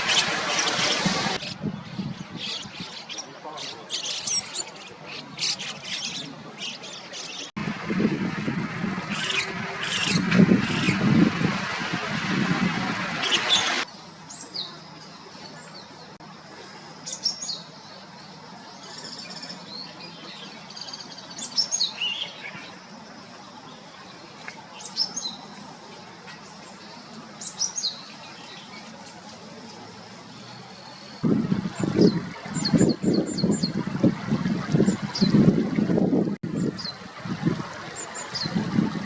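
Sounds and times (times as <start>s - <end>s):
loud noisy background: 0.0s - 1.6s, 7.6s - 13.9s
starling calls: 9.0s - 11.1s.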